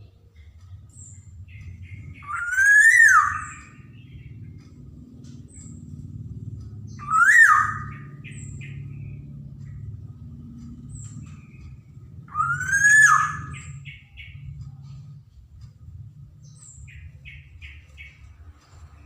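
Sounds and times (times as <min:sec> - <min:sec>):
low steady rumble: 0:00.0 - 0:19.0
oriole calling: 0:00.6 - 0:18.7.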